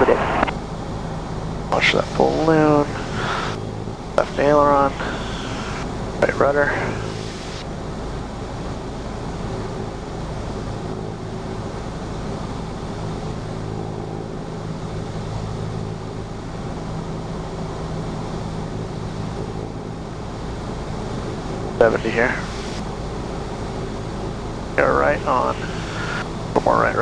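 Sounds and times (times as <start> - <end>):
airflow noise: 0.0 - 8.8, 20.5 - 27.0
aircraft piston engine drone: 0.0 - 27.0.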